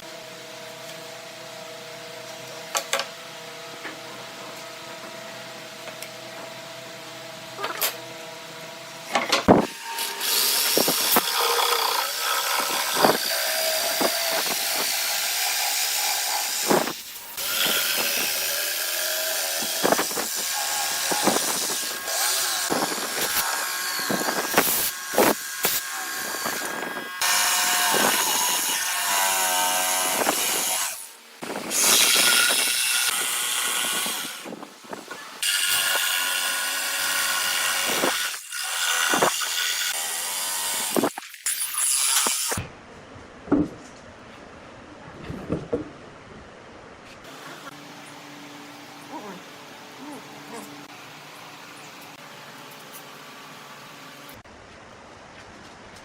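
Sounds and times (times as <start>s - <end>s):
power tool running against wood: 9.6s - 34.5s, 35.4s - 41.1s.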